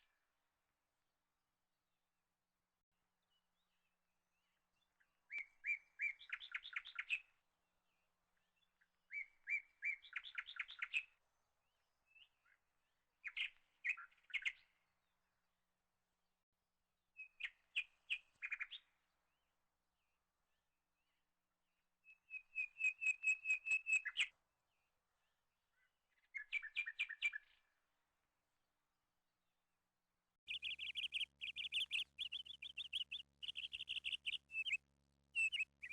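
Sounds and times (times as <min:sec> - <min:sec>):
songbird singing trills: 0:05.3 - 0:07.3, 0:09.1 - 0:11.1, 0:17.2 - 0:18.9, 0:22.1 - 0:24.3, 0:25.8 - 0:27.7, 0:30.5 - 0:35.9.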